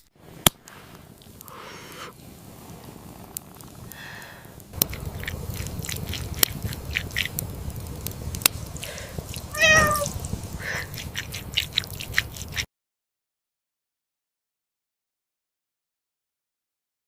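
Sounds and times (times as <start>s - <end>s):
wood fire crackling and popping: 0.0s - 12.7s
wavering animal call: 9.5s - 11.9s.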